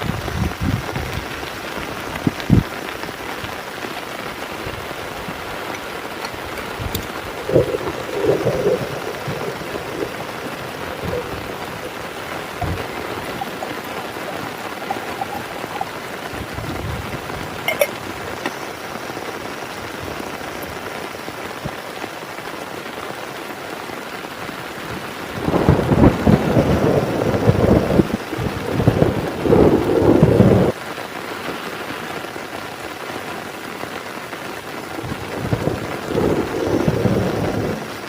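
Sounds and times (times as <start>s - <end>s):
thunder rumble: 0.0s - 3.6s, 4.3s - 21.8s, 24.9s - 30.8s, 35.0s - 38.0s
heavy rain falling: 0.0s - 38.0s.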